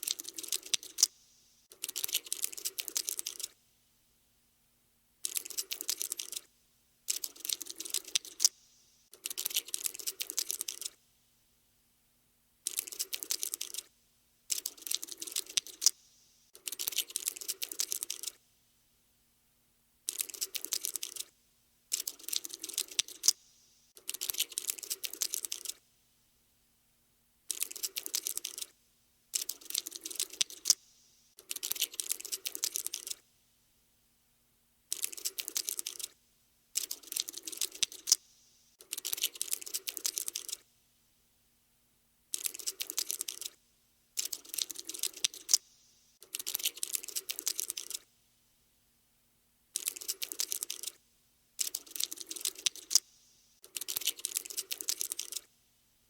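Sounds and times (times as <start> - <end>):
cockroach skittering clicks: 0.0 - 3.6, 5.2 - 6.5, 7.1 - 11.0, 12.6 - 13.9, 14.5 - 18.4, 20.1 - 21.3, 21.9 - 25.8, 27.5 - 33.2, 34.9 - 36.2, 36.8 - 40.6, 42.3 - 43.6, 44.2 - 48.1, 49.8 - 51.0, 51.6 - 55.5.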